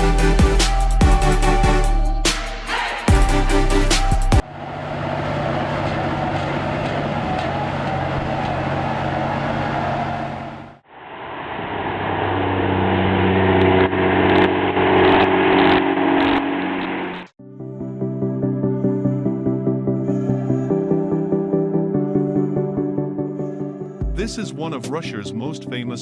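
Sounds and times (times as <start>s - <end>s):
heavy vehicle engine running: 3.5s - 17.3s.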